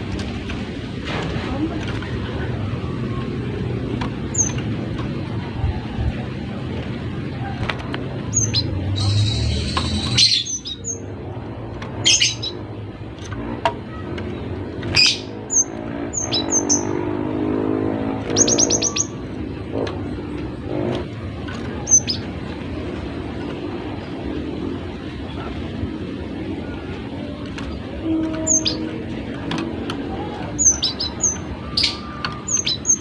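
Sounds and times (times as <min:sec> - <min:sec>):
bird chirping: 0:04.2 - 0:04.7, 0:08.2 - 0:11.1, 0:12.0 - 0:12.8, 0:13.9 - 0:17.1, 0:18.2 - 0:19.4, 0:21.7 - 0:22.4, 0:28.1 - 0:29.0, 0:30.1 - 0:33.0.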